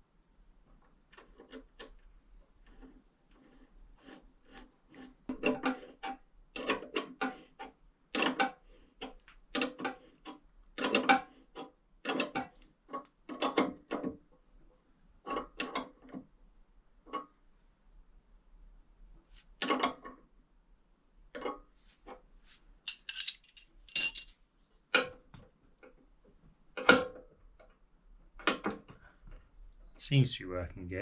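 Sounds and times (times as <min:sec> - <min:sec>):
metallic clicks and clatters of tools: 0:22.9 - 0:24.4.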